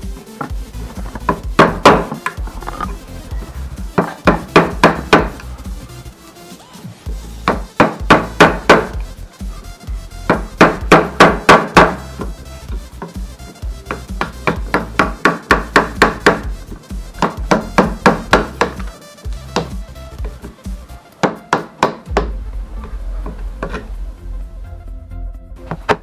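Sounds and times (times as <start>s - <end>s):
background music: 0.0s - 26.0s
hammer blows on wood: 0.4s - 2.5s, 10.2s - 20.5s.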